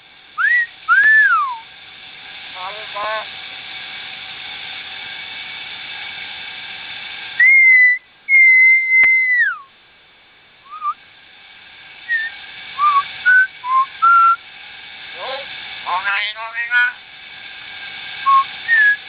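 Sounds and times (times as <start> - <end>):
bird whistling song: 0.4 - 1.6, 7.4 - 9.7, 10.6 - 11.0, 12.1 - 14.4, 18.3 - 19.0.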